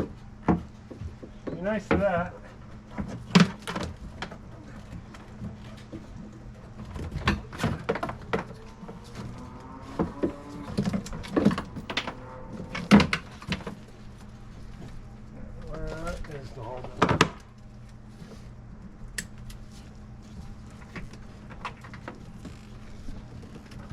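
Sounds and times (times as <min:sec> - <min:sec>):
low hum: 0:04.0 - 0:15.8
parts and tools knocking and rattling: 0:10.8 - 0:13.7.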